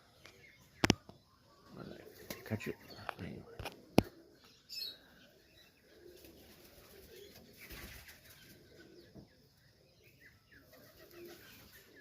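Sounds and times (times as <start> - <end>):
pigeons cooing: 0.1 - 12.0.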